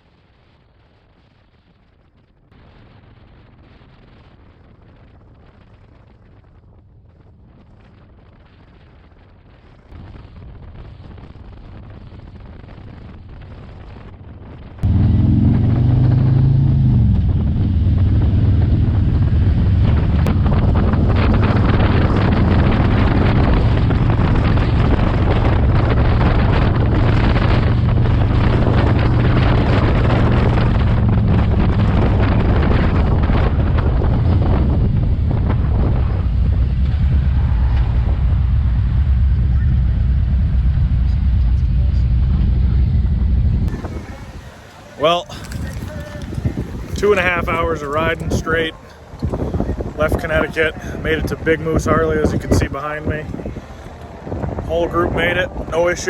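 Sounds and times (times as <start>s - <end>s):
wind noise on microphone: 0.0s - 56.0s
motorcycle engine accelerating: 10.0s - 52.6s.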